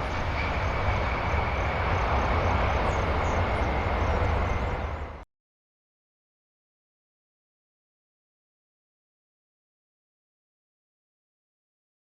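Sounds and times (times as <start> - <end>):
jet engines rumbling with whine: 0.0 - 5.3.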